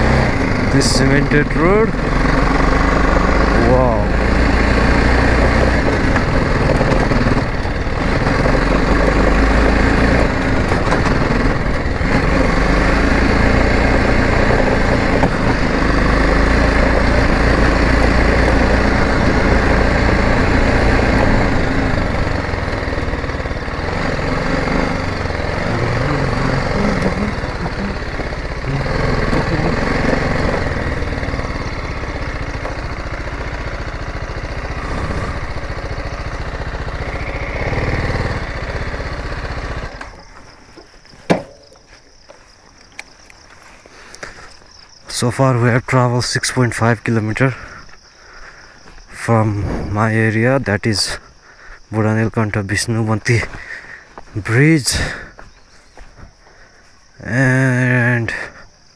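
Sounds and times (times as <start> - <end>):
motorcycle engine running: 0.0 - 40.7.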